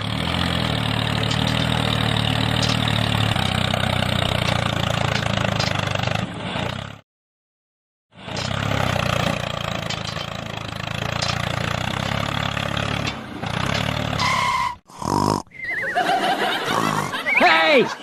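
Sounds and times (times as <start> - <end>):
small engine running: 0.0 - 7.0.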